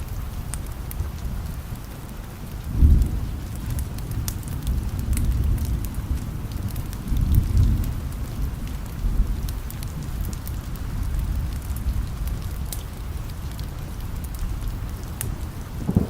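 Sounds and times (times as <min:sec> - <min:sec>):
steady rain: 0:00.0 - 0:16.0
wood fire crackling: 0:00.0 - 0:16.0
low rumble: 0:15.8 - 0:16.0.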